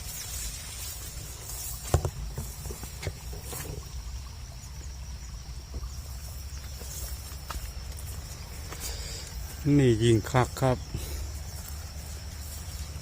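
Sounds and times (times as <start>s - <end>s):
insect trill: 0.0s - 13.0s
short knocks and rustles: 1.4s - 3.9s.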